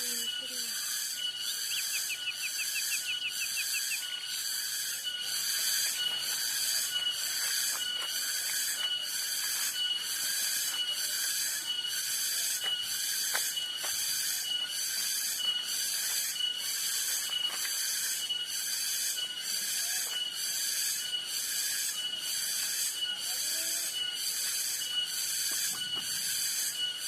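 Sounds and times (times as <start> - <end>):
cicadas buzzing shrilly: 0.0 - 27.0
steady high whine: 0.0 - 27.0.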